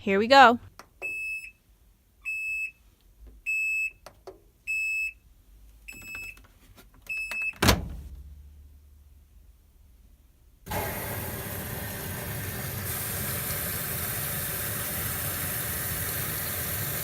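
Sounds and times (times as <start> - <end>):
washing machine panel beeping: 1.0 - 1.6, 2.2 - 2.8, 3.5 - 4.0, 4.7 - 5.2, 5.9 - 6.4, 7.1 - 7.7.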